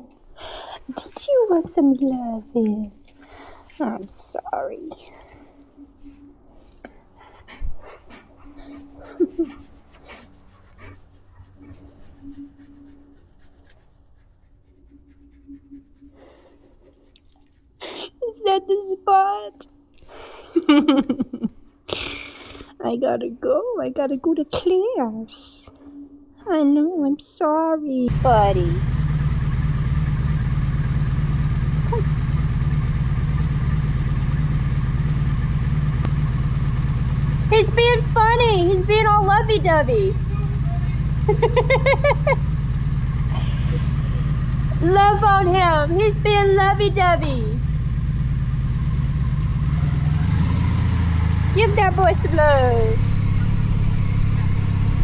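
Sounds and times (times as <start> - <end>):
hand stroking fur: 8.4 - 17.6
motorcycle engine idling: 28.1 - 55.0.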